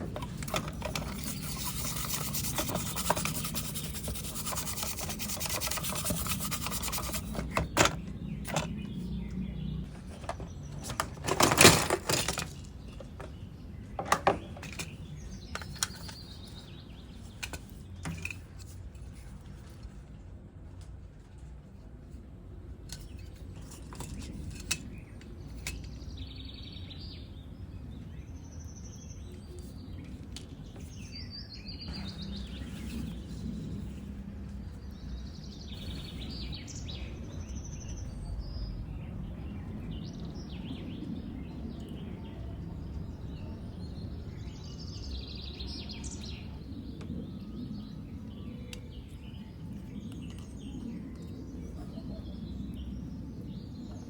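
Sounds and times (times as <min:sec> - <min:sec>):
birds chirping: 0:00.0 - 0:11.3, 0:23.0 - 0:54.0.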